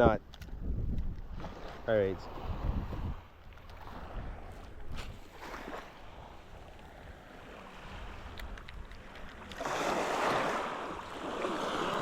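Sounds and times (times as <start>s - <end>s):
wind buffeting microphone: 0.0s - 12.0s
wave washing up beach: 9.6s - 12.0s.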